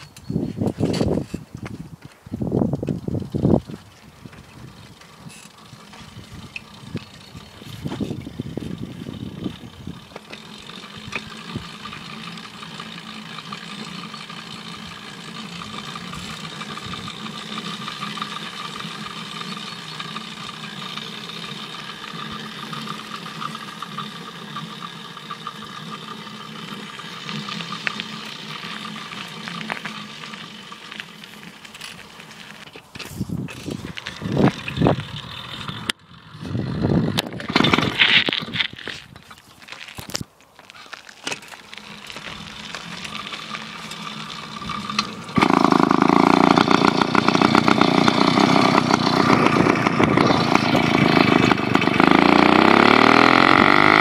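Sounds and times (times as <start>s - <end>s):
two-stroke engine running: 1.2s - 40.2s, 41.0s - 54.0s
loud uneven bursts of noise: 41.4s - 54.0s.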